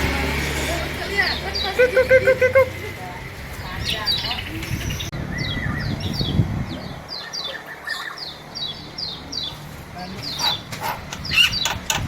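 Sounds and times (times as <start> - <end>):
small bird chirping: 3.6 - 12.0.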